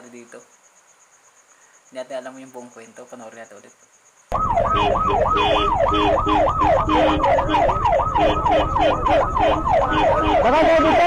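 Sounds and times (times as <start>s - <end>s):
police siren yelping: 4.3s - 11.0s
wind and road noise: 4.3s - 11.0s.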